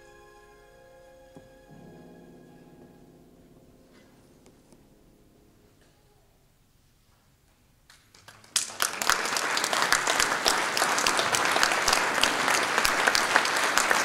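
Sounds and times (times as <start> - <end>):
audience applause: 8.0 - 14.0.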